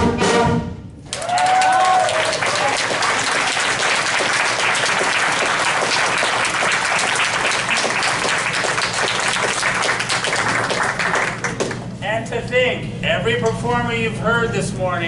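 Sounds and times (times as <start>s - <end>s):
audience clapping: 1.0s - 11.9s.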